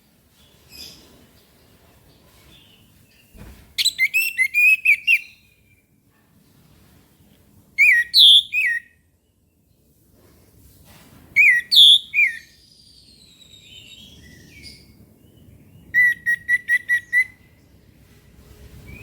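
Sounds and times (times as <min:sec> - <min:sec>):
faint bird chirps: 0:11.4 - 0:17.6.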